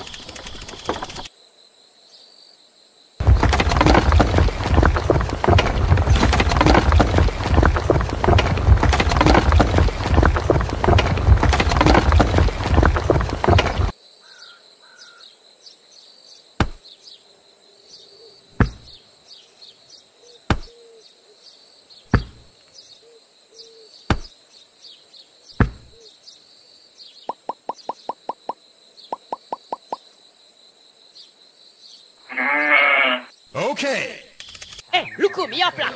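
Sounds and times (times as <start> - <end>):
clay bricks clicking on sand: 0.0 - 1.3, 3.2 - 13.9
faint birdsong: 0.0 - 11.2, 12.1 - 35.9.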